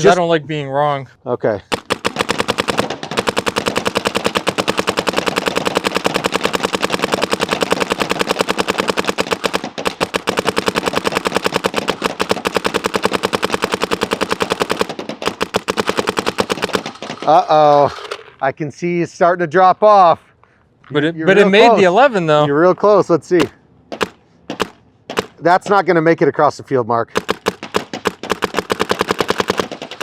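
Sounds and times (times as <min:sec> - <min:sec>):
paintball marker rapid fire: 0:01.7 - 0:17.4, 0:23.4 - 0:25.4, 0:27.2 - 0:30.0.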